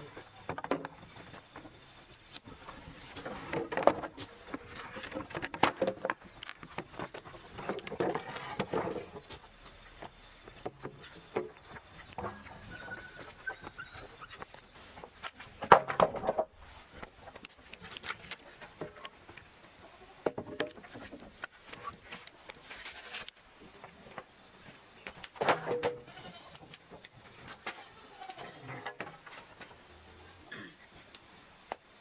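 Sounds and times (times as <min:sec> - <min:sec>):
drawn-out animal calls: 0:07.4 - 0:15.0.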